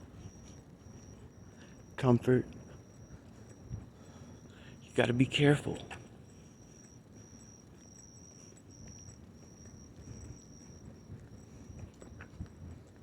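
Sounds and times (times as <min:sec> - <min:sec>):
high-pitched insect trill: 0:06.3 - 0:12.3.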